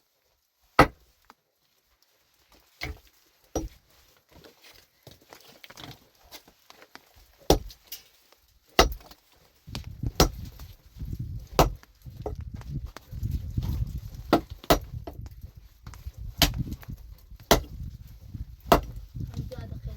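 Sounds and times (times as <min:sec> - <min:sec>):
hand tool striking something hard: 0:08.8 - 0:09.1, 0:10.1 - 0:10.5, 0:17.5 - 0:17.7.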